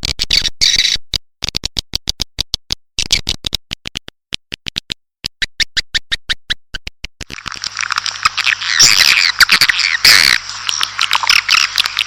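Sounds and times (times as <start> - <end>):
swiftlets twittering: 7.4 - 12.0.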